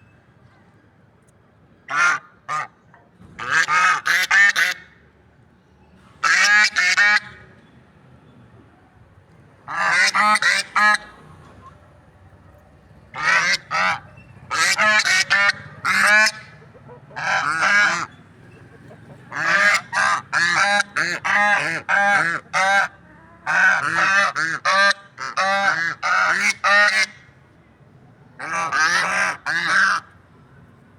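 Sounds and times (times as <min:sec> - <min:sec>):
guinea fowl calling: 0:13.2 - 0:27.1.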